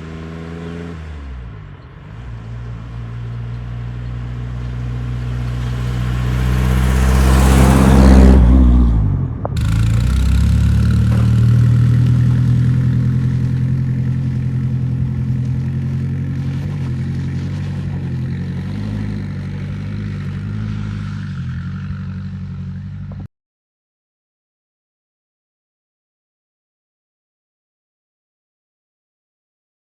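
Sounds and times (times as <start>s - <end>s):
car engine revving: 4.8s - 15.1s.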